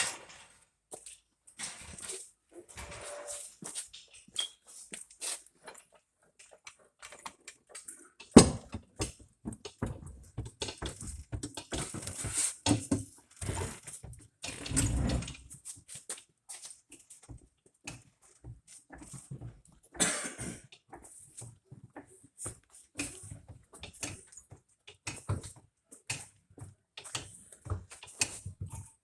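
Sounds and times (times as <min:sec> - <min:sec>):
knocking and clattering on metal: 0:08.3 - 0:13.1.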